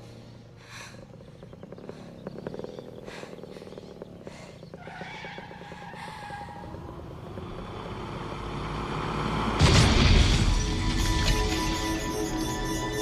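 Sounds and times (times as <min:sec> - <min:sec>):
low rumbling: 0:00.0 - 0:12.5
vehicle engine: 0:00.0 - 0:13.0
heavy crash and boom: 0:09.6 - 0:11.7
action film score music: 0:09.6 - 0:13.0.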